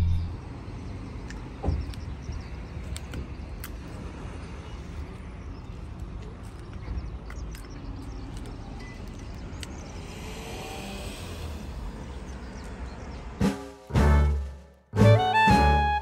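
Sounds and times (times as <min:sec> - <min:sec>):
low rumble: 0:00.0 - 0:00.6
music: 0:13.4 - 0:16.0.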